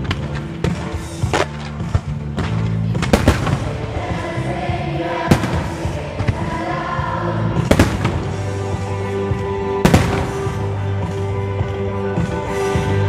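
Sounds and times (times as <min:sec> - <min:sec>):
fireworks bursting with sharp bangs: 0:00.0 - 0:07.0, 0:07.6 - 0:08.9, 0:09.7 - 0:11.3
music with sustained notes: 0:00.0 - 0:13.0.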